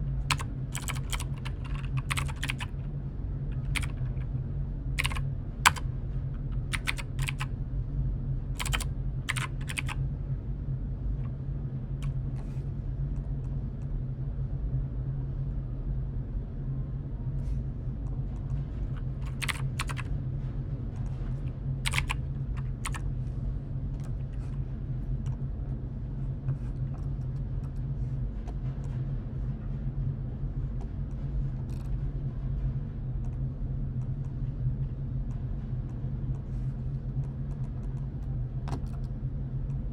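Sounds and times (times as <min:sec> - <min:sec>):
steady low hum: 0:00.0 - 0:39.9
computer keyboard typing: 0:00.3 - 0:02.8, 0:03.5 - 0:04.3, 0:05.0 - 0:07.5, 0:08.6 - 0:10.0, 0:19.0 - 0:20.1, 0:21.9 - 0:23.0, 0:38.7 - 0:39.1.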